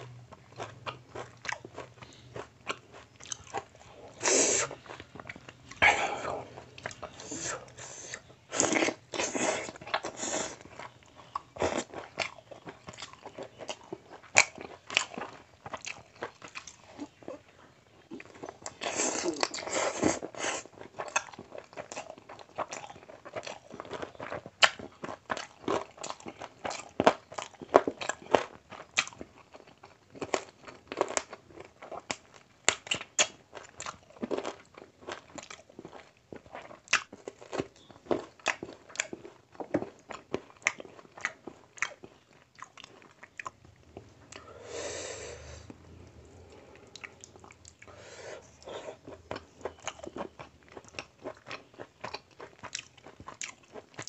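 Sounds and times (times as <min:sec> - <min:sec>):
person chewing with smacks: 0:00.0 - 0:54.0
breathy mouth sound: 0:05.8 - 0:10.6, 0:44.2 - 0:49.2.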